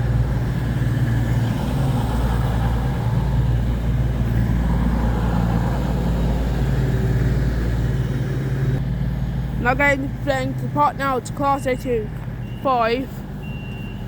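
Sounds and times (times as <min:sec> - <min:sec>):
train engines idling: 0:00.0 - 0:14.0.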